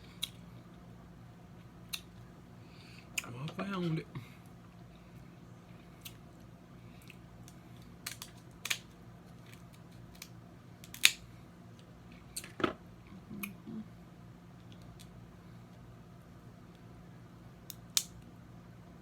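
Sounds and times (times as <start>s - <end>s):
crab shells cracking: 7.4s - 11.2s.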